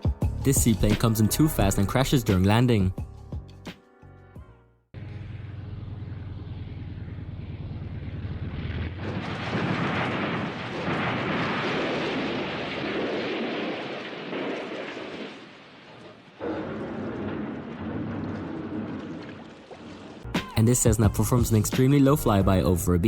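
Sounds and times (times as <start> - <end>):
propeller engine droning: 5.0 - 12.2
water spray crash: 8.4 - 20.8.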